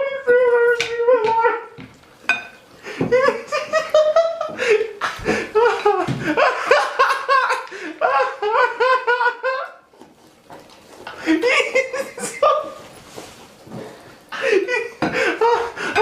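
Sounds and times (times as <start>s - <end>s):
person laughing hard: 2.9s - 9.9s, 11.2s - 12.8s, 14.4s - 16.0s.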